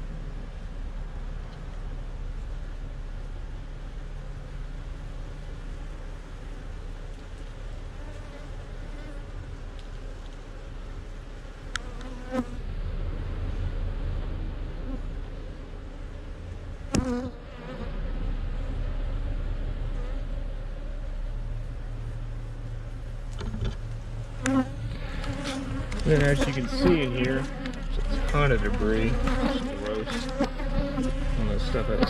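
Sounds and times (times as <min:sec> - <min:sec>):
honeybees buzzing: 0:22.6 - 0:32.0.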